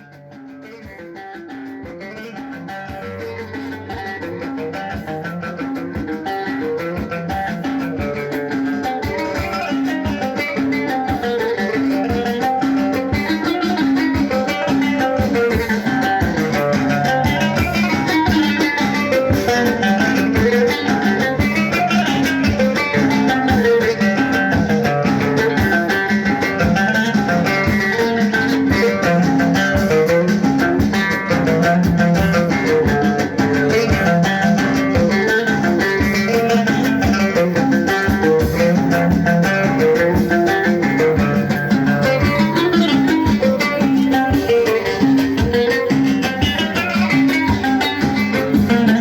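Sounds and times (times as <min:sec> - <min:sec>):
plucked string instrument: 0:00.0 - 0:49.0.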